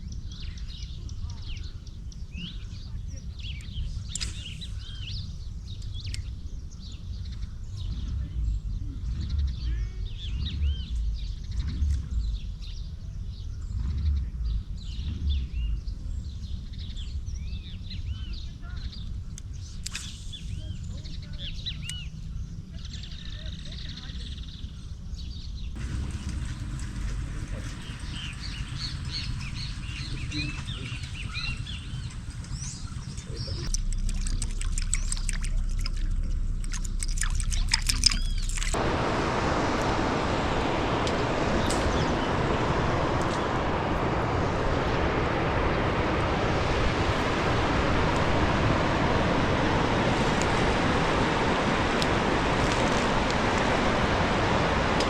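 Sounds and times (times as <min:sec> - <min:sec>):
birds chirping: 0:00.0 - 0:55.0
creek water rushing: 0:25.8 - 0:55.0
clicks and rustles: 0:32.4 - 0:38.8.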